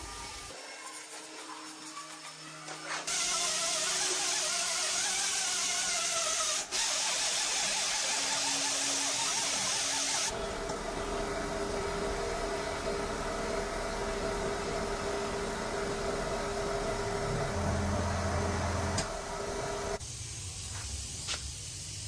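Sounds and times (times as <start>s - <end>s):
steady machine hum: 10.3s - 20.0s.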